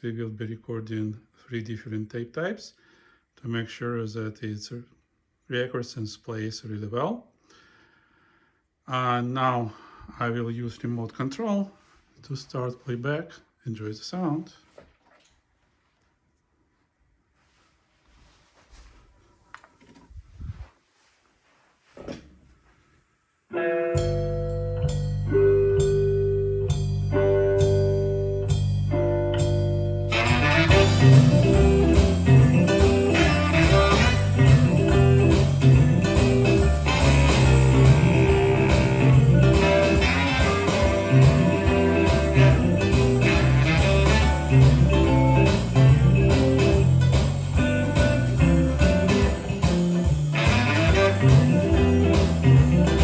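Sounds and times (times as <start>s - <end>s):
blues band with guitar and drums: 23.6s - 53.0s.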